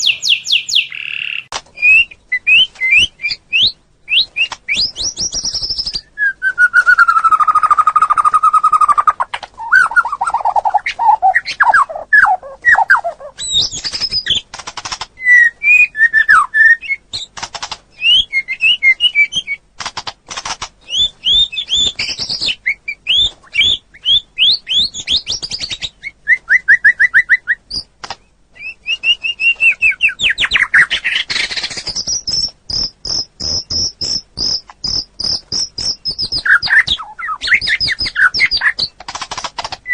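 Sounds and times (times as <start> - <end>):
songbirds singing: 0.0 - 19.7, 20.6 - 39.9.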